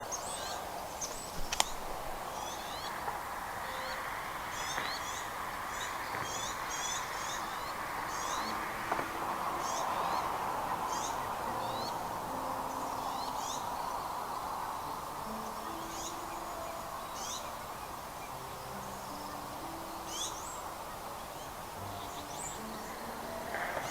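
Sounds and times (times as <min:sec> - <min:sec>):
steady background hiss: 0:00.0 - 0:23.9
sharp click: 0:01.4 - 0:01.8.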